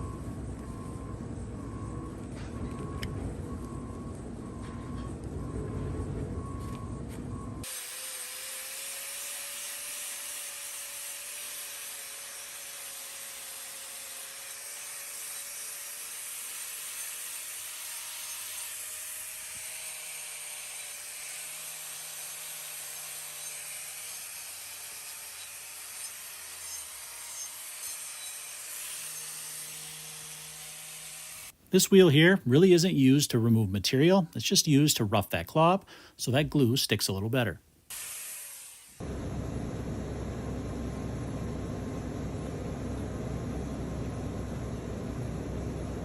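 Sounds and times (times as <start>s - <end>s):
power grinder whirring on hoof: 7.6s - 31.5s, 37.9s - 39.5s.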